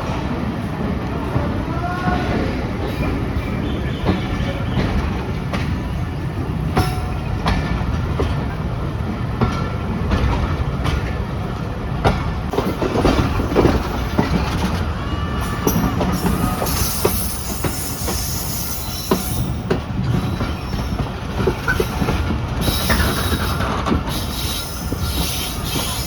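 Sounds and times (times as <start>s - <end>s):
train coach rumble: 0.0s - 26.0s
wheels clicking over rail joints: 12.0s - 26.0s.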